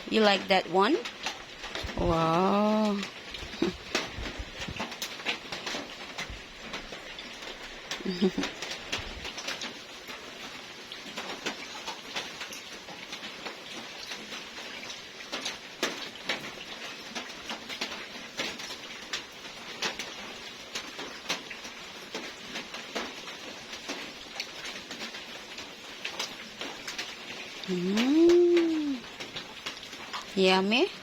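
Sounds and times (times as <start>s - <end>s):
rain dripping and pattering: 0.0s - 31.0s.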